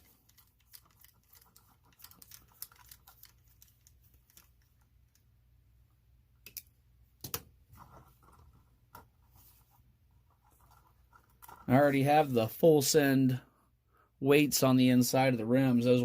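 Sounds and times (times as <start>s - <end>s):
clicks and taps of small parts: 6.4s - 7.5s.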